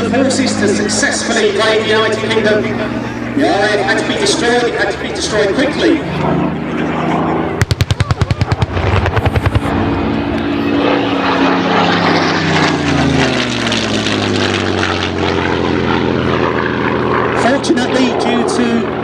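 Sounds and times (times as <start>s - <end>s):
propeller plane passing overhead: 0.0s - 19.0s
machine-gun fire: 7.6s - 9.7s.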